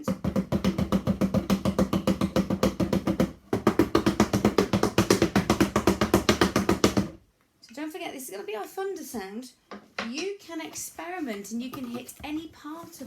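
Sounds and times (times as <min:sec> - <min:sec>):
wooden spoons drumming cardboard box: 0:00.0 - 0:07.2, 0:10.8 - 0:13.0.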